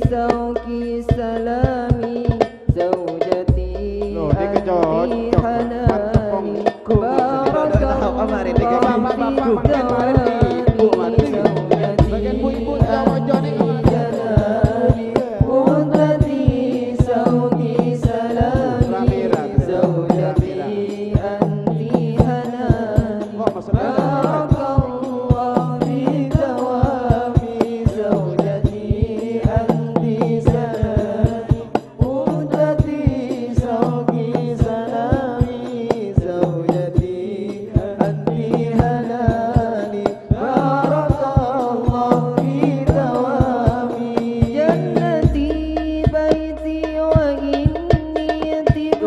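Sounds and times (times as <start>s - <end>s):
deep bass drum: 0.0s - 49.0s
frame drums beating: 0.0s - 49.0s
group chanting: 6.4s - 22.4s, 23.6s - 35.9s, 40.3s - 45.4s.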